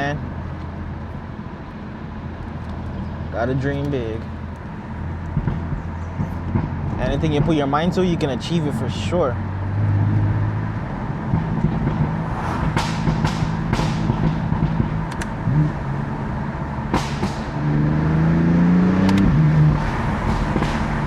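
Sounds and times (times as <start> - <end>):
car engine accelerating: 0.0 - 21.0
sharp clicks: 15.1 - 15.4, 19.0 - 19.3.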